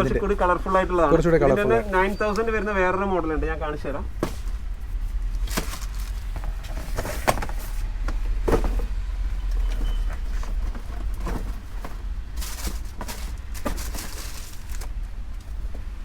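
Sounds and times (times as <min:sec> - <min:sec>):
knocks and rustles of handling: 0:04.0 - 0:16.0.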